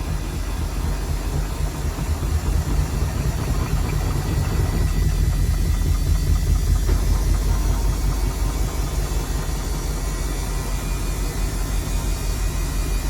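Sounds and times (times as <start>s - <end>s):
washing machine drum rumbling: 0.0s - 10.3s.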